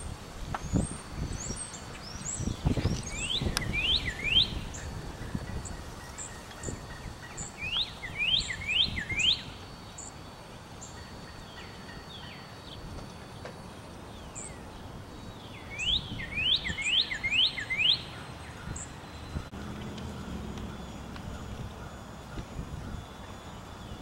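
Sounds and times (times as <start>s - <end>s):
birds chirping: 0.5s - 24.0s
low rumbling noise: 18.2s - 24.0s.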